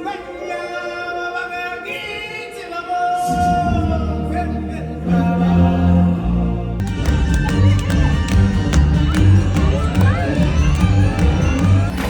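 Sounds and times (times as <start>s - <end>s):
backing music: 3.2s - 12.0s
ensemble singing held notes: 3.2s - 12.0s.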